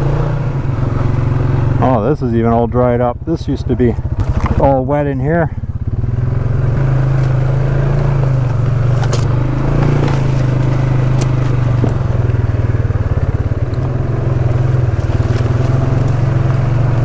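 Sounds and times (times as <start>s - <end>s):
atv engine running: 0.0s - 17.0s
machine knocks and rattles: 6.8s - 17.0s.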